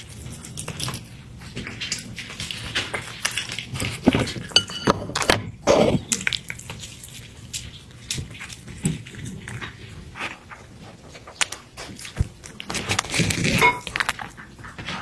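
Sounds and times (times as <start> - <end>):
kitchen clicks and knocks: 4.3 - 5.4
dish clinking: 4.6 - 5.2.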